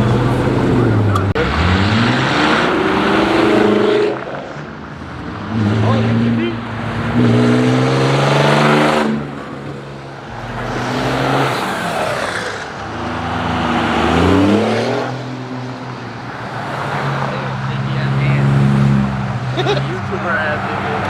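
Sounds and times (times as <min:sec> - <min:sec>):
car engines revving: 0:00.0 - 0:21.0
rushing noise: 0:10.2 - 0:14.5.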